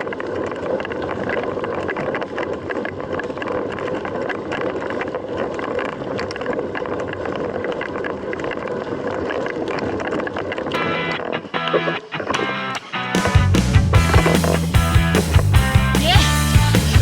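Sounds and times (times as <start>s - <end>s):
tyre noise: 9.8s - 17.0s
bike clicks and rattles: 14.0s - 15.6s.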